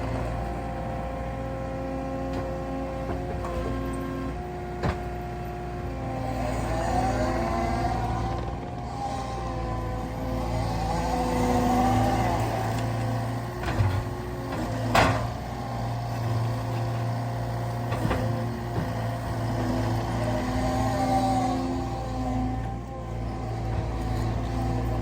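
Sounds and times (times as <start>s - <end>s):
hydraulic whine: 0.0s - 17.1s
skid steer diesel engine running: 0.0s - 25.0s.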